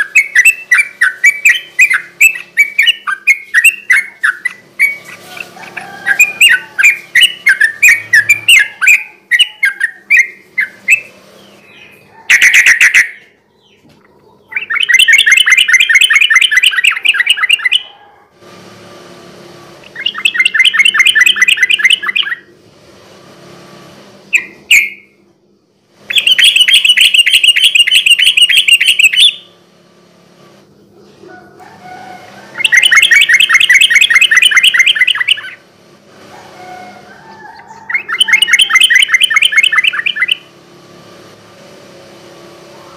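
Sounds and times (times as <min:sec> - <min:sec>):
bird rattling trills: 0:00.0 - 0:13.2, 0:19.9 - 0:22.5, 0:26.1 - 0:29.5, 0:32.4 - 0:35.6, 0:36.6 - 0:40.5.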